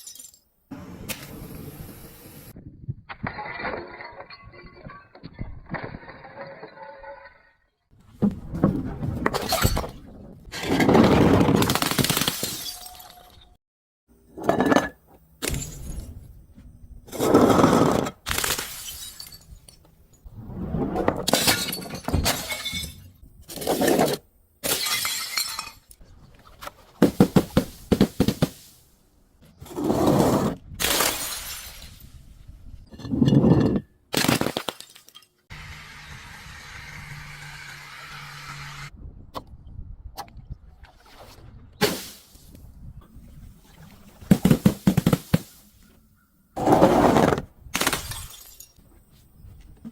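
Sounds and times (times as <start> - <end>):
glass bottles being crushed: 0.0 - 0.4, 12.0 - 13.5, 18.3 - 19.8, 21.3 - 26.0, 32.9 - 35.4, 47.8 - 48.8.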